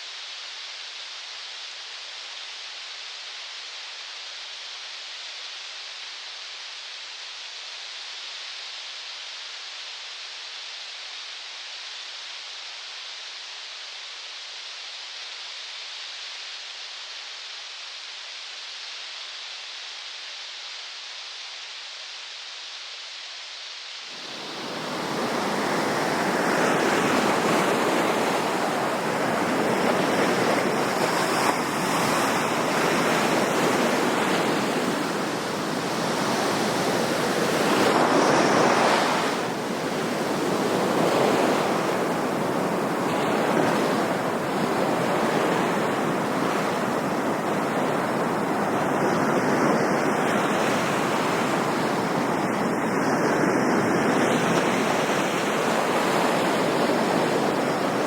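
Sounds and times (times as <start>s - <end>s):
ocean waves washing in: 24.0s - 58.0s.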